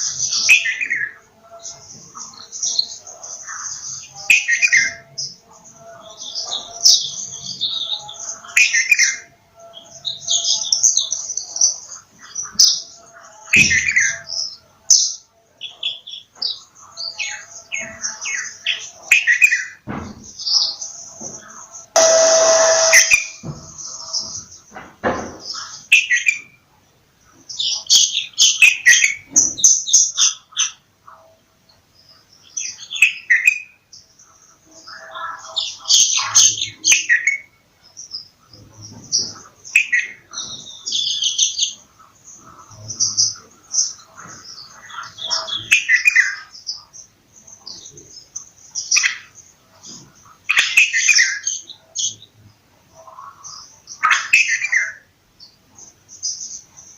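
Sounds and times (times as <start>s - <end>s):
bulbuls chirping: 20.4s - 24.7s, 31.8s - 56.9s
bulbul chirping: 22.0s - 23.4s.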